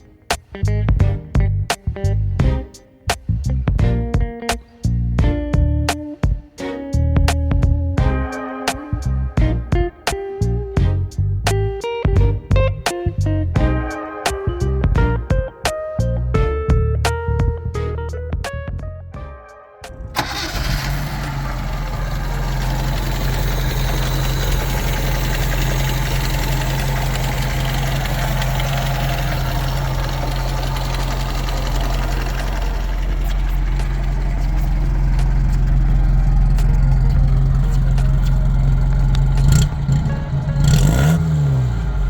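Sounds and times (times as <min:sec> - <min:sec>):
car engine starting and idling: 0:19.8 - 0:42.0.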